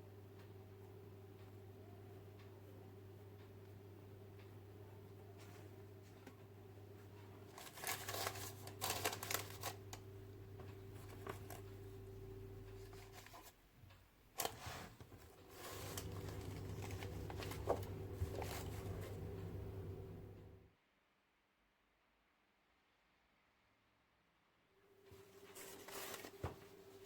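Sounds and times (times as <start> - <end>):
hands handling things: 7.5 - 10.0, 14.4 - 20.2, 25.2 - 27.0.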